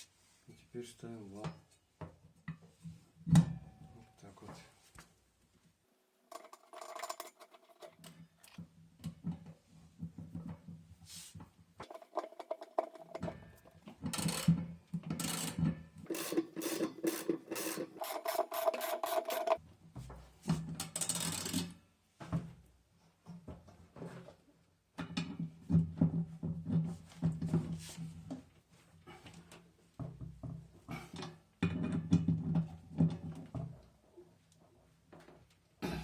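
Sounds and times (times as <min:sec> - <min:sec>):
washing machine parts scraping and knocking: 0:06.3 - 0:10.8, 0:11.4 - 0:19.6.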